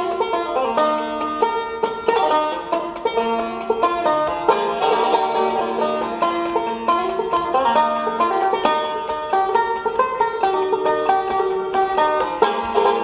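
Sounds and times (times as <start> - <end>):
banjo picking: 0.0 - 13.0.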